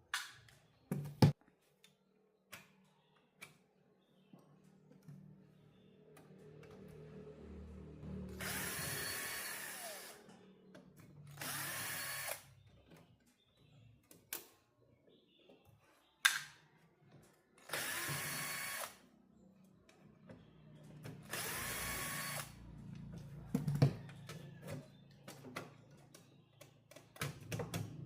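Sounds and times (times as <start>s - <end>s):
power tool motor spinning: 8.3s - 10.2s, 11.3s - 12.4s, 17.7s - 19.0s, 21.2s - 22.6s.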